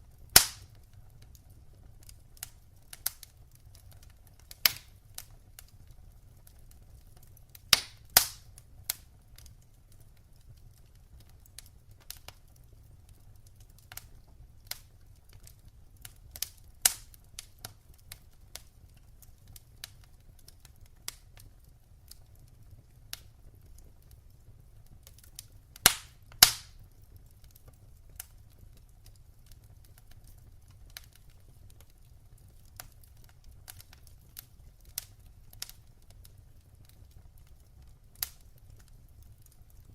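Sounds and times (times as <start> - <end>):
wood fire crackling: 0.0 - 39.9
sharp pops and ticks: 0.3 - 1.3, 2.0 - 5.8, 7.2 - 9.5, 13.4 - 18.7, 23.1 - 39.9.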